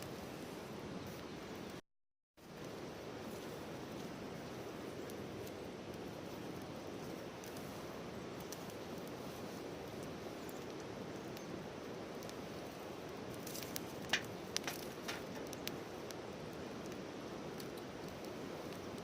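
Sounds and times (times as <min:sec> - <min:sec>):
campfire burning: 0:00.0 - 0:01.8, 0:02.4 - 0:19.0.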